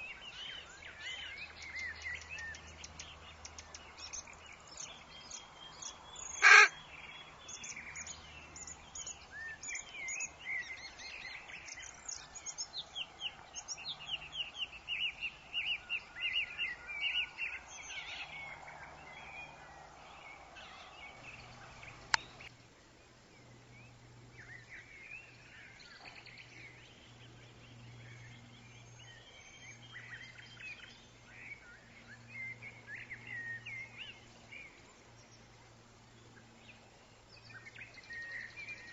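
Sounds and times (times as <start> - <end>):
faint wind hiss: 0.0 - 38.9
birds chirping and singing: 23.7 - 35.3.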